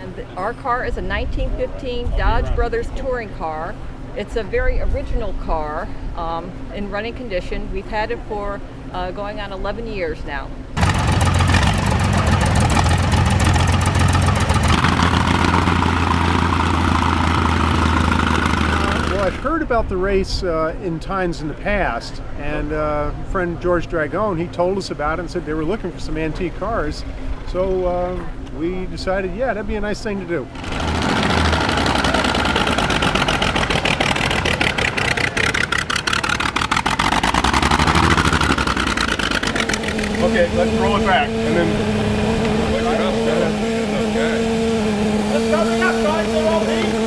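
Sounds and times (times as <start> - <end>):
car engine idling: 10.8 - 19.5, 30.6 - 47.0.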